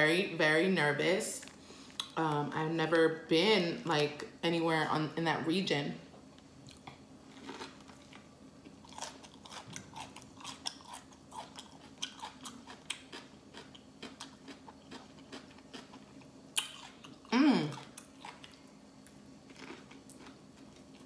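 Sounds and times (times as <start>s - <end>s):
crisp chewing: 6.6s - 21.0s.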